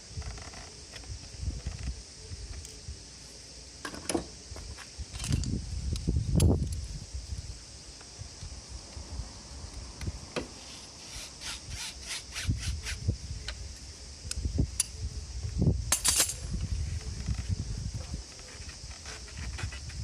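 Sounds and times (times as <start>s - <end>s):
tool knocks and handling noise: 3.8s - 4.3s.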